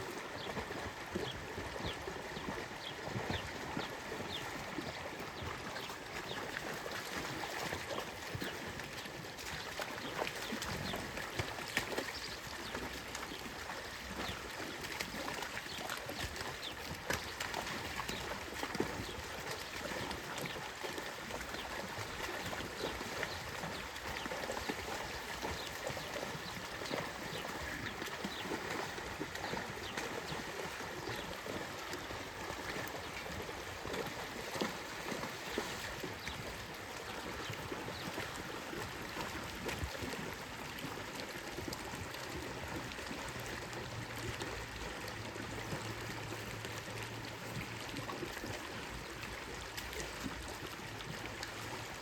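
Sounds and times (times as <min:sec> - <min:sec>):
stream water running and splashing: 0:00.0 - 0:52.0
small sharp splashes and knocks: 0:05.4 - 0:38.3.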